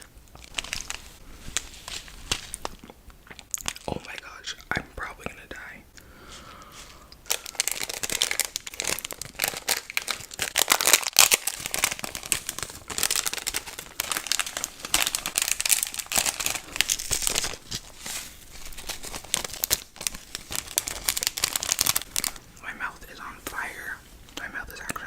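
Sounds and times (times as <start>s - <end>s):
packaging crinkling: 0.0s - 5.2s, 7.2s - 25.0s
packaging tearing: 0.4s - 2.8s, 7.3s - 22.4s.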